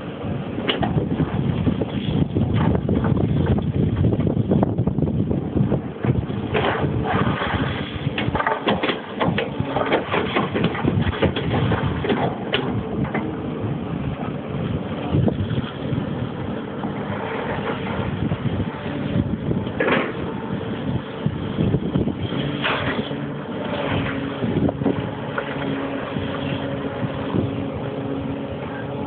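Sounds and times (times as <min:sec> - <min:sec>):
excavator running: 0:00.0 - 0:29.0
knocks and rattles: 0:06.0 - 0:13.4.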